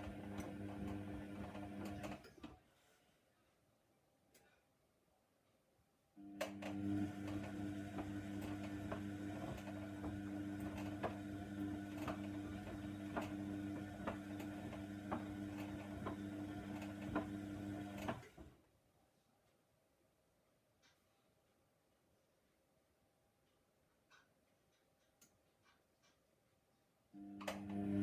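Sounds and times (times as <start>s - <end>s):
washer dryer humming: 0.0s - 2.2s, 6.2s - 18.4s, 27.2s - 28.0s.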